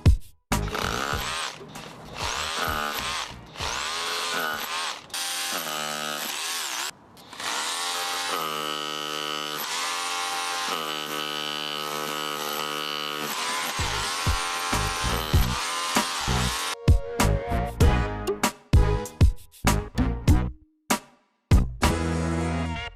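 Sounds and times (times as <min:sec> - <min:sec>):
rotary hammer drill whining: 0:00.6 - 0:16.8.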